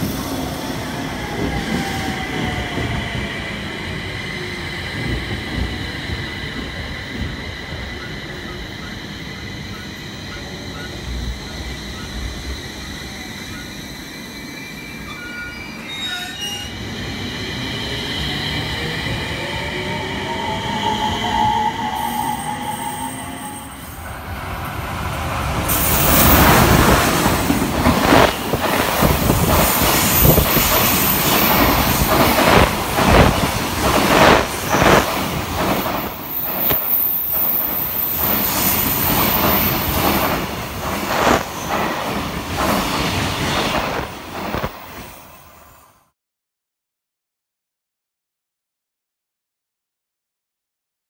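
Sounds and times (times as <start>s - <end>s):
high wheel squeal: 9.3s - 17.0s, 18.3s - 24.1s
train wheels clattering over rail joints: 25.7s - 43.1s.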